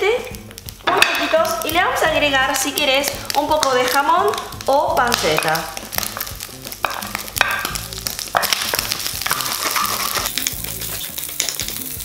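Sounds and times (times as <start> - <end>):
meat sizzling in hot oil: 0.0 - 12.0
wooden spatula clicking and scraping: 2.5 - 12.0.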